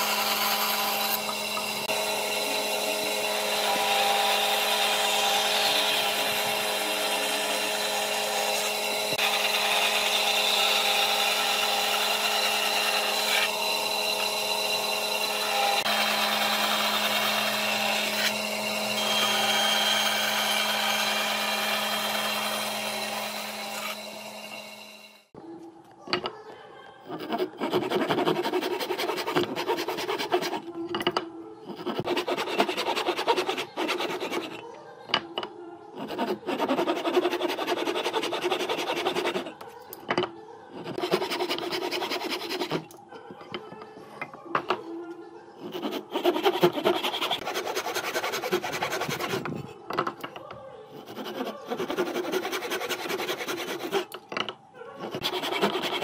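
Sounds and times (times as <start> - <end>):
tool rasping on wood: 0.0 - 24.4, 27.1 - 30.8, 31.7 - 34.7, 36.0 - 39.7, 40.7 - 42.9, 45.6 - 49.8, 51.0 - 54.2, 55.0 - 56.0
power tool motor hum: 0.0 - 25.2.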